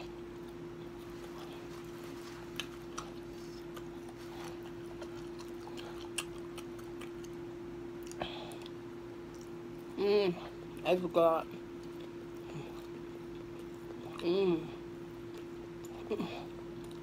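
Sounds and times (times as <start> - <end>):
steady hum: 0.0 - 17.0
person chewing food: 0.3 - 10.8, 11.7 - 17.0.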